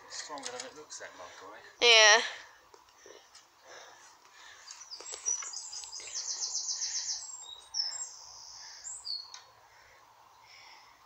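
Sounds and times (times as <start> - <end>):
songbird trilling and whistling: 4.8 - 9.4.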